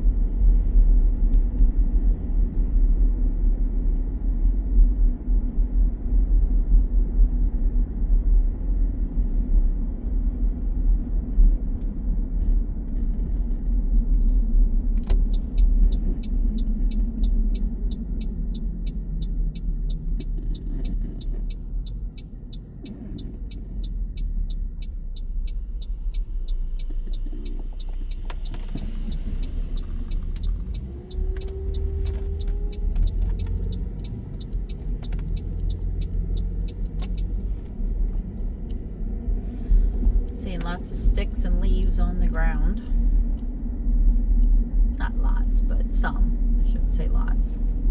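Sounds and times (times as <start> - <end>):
car engine and road noise: 0.0 - 47.9
rapid even ticking: 15.2 - 37.5.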